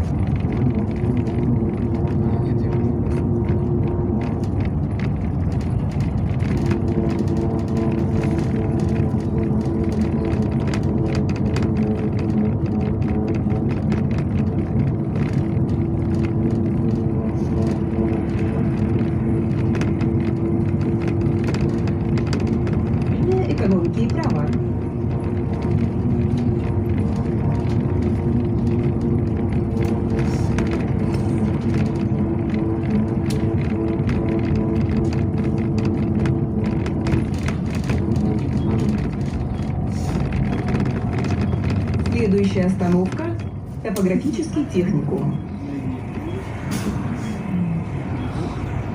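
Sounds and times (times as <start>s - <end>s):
bus engine and road drone: 0.0s - 48.9s
rattles and clicks from bus body: 0.0s - 48.9s.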